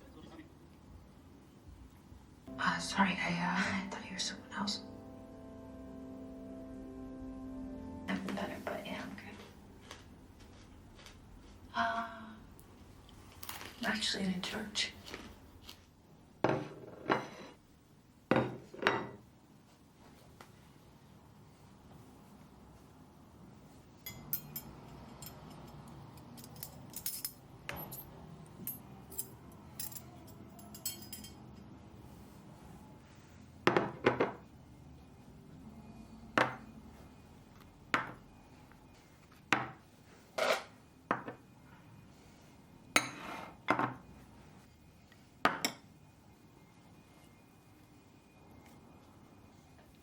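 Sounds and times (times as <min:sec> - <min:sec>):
dishes and cutlery clinking: 0:16.5 - 0:17.6, 0:24.0 - 0:31.8, 0:43.0 - 0:44.1, 0:45.5 - 0:45.9.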